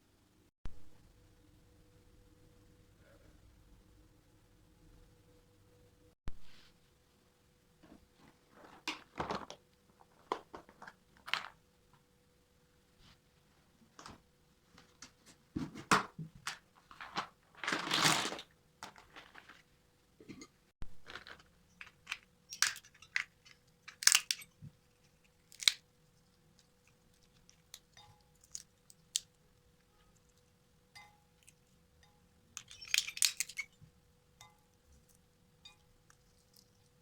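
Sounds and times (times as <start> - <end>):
containers clicking and knocking: 8.6 - 11.6, 20.3 - 24.6
packaging tearing rustle: 16.9 - 19.6.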